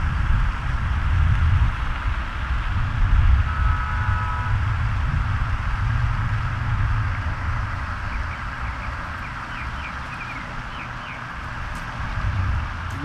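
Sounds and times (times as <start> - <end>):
low steady rumble: 0.0 - 13.0
bird chirping: 8.0 - 11.3.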